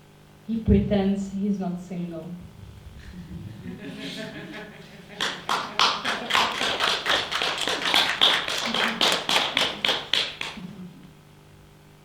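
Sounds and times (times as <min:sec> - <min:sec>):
small audience clapping: 0:02.9 - 0:11.1.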